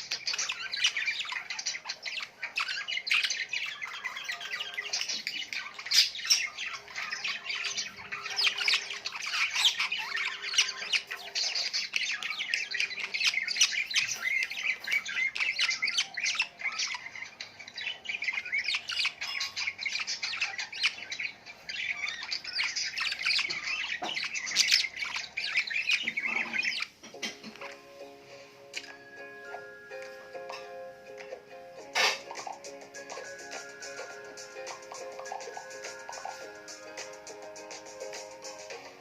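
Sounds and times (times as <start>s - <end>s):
flock of birds chirping: 0.0s - 39.0s.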